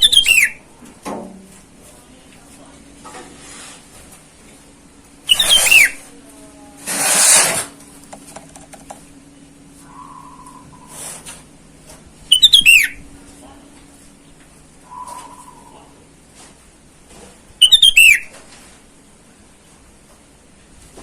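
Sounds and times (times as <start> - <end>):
bulbul chattering: 0.0 - 0.6, 5.3 - 6.0, 12.3 - 13.0, 17.6 - 18.3.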